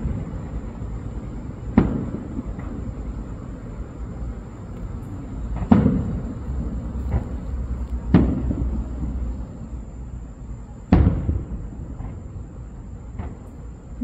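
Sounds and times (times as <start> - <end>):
firework shells booming: 0.0 - 4.0, 4.8 - 9.6, 10.8 - 13.7
faint firework bang: 1.7 - 2.9, 5.5 - 7.4, 8.0 - 9.2, 10.9 - 12.4, 13.1 - 13.6.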